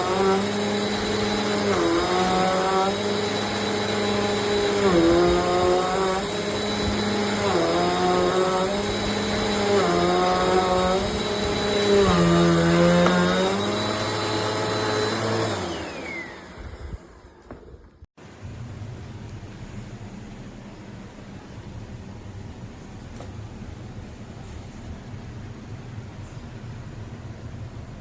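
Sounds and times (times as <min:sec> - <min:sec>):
motor winding down whine: 0:00.0 - 0:18.0
vacuum cleaner running: 0:00.0 - 0:18.1.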